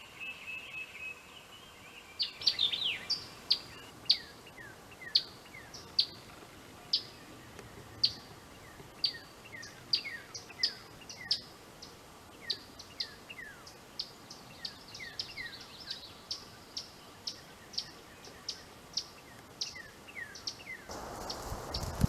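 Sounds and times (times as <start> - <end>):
songbirds chirping: 0.0 - 22.0
steady rushing noise: 20.9 - 22.0.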